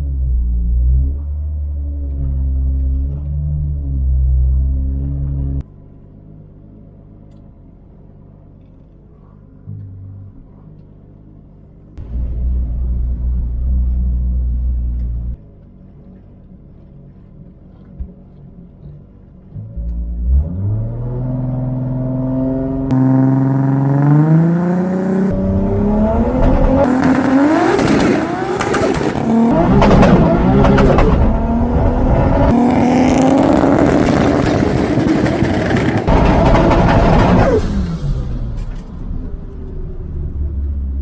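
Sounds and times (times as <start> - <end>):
car engine revving and accelerating: 19.5 - 41.0.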